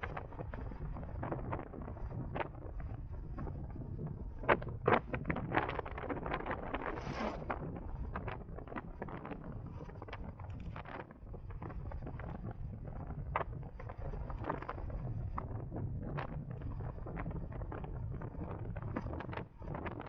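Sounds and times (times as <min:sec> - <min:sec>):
low road rumble: 0:00.0 - 0:19.8
wind buffeting microphone: 0:00.0 - 0:20.0.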